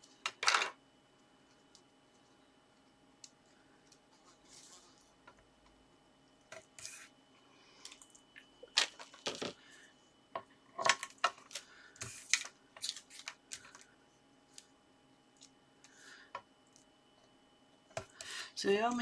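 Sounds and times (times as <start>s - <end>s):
card and tape crackling: 10.9s - 13.9s.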